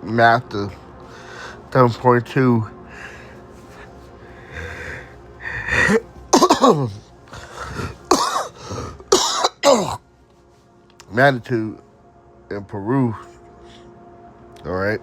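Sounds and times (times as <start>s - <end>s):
man coughing: 5.5s - 10.0s
man clearing his throat: 5.7s - 10.0s.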